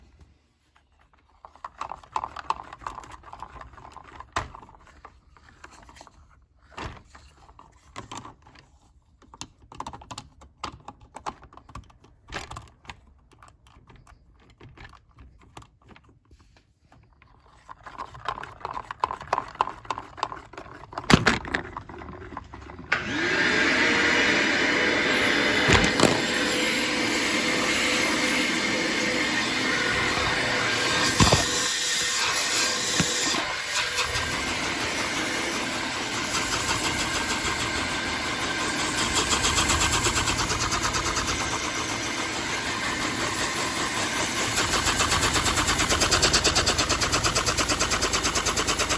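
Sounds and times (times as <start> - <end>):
plastic bricks clicking: 17.4 - 22.8, 25.6 - 26.4, 29.9 - 33.4
vacuum cleaner motor whining: 21.2 - 48.9.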